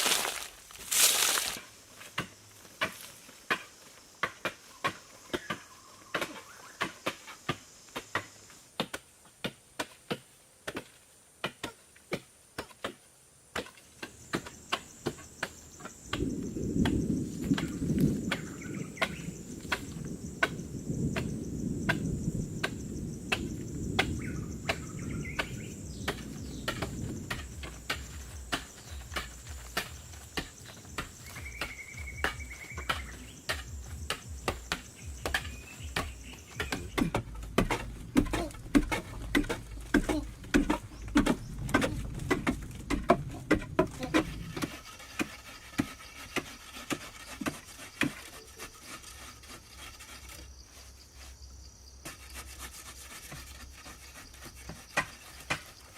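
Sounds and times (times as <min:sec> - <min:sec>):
insects trilling: 0:00.0 - 0:08.6, 0:13.5 - 0:55.9
sharp knocks: 0:18.3 - 0:44.8.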